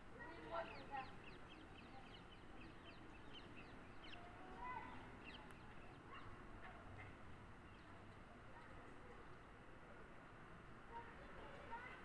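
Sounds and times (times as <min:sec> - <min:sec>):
small birds chirping: 0:00.2 - 0:06.4, 0:07.0 - 0:09.5.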